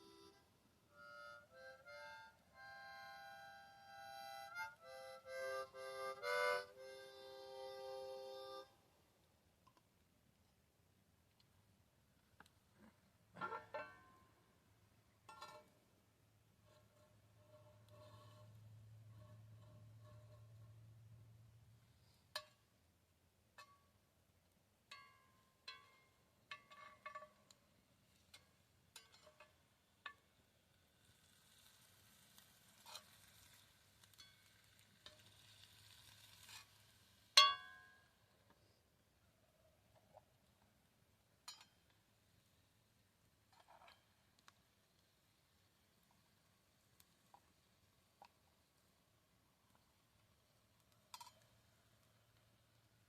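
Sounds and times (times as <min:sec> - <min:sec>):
harmonica playing: 0:00.0 - 0:08.8.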